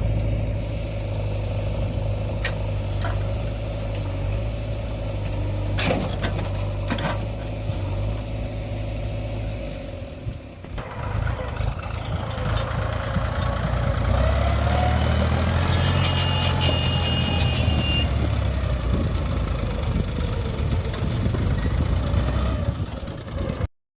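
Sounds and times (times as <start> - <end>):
heavy diesel engine running: 0.0 - 23.7.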